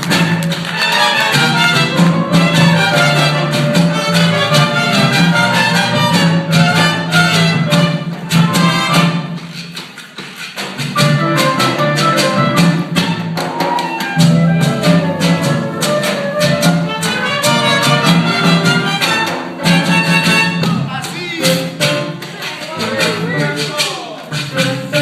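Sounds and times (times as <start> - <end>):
violin melody: 0.0 - 9.2, 11.0 - 20.8
percussion beat: 0.0 - 25.0.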